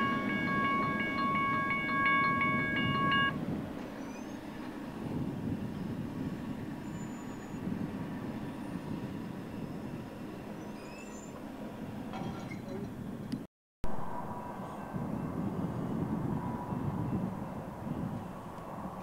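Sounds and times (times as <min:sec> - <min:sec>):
crossing bell ringing: 0:00.0 - 0:03.4
freight train rumbling: 0:00.0 - 0:13.4, 0:14.2 - 0:19.0.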